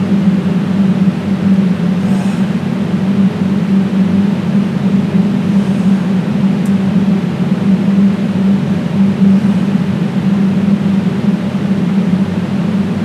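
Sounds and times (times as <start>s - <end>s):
loud droning hum: 0.0s - 13.0s
hiss: 1.9s - 2.7s.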